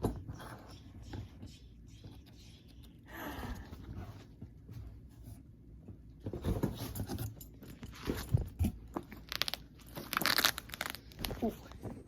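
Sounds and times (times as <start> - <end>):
packaging rustling: 9.1 - 11.5.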